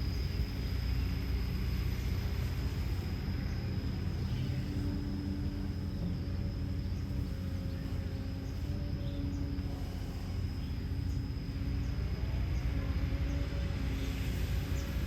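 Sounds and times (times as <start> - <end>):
diesel engine droning: 0.0 - 15.0
thin high whine: 0.0 - 15.0.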